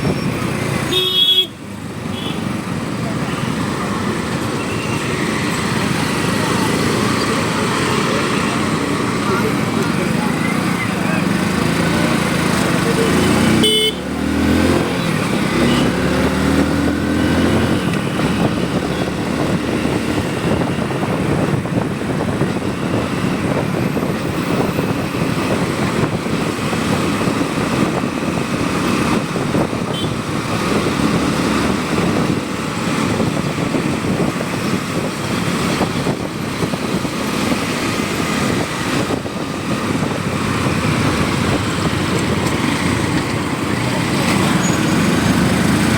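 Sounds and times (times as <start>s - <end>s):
motorcycle engine: 0.0s - 45.9s
wind and road noise: 0.0s - 45.9s
horn toot: 13.4s - 14.2s.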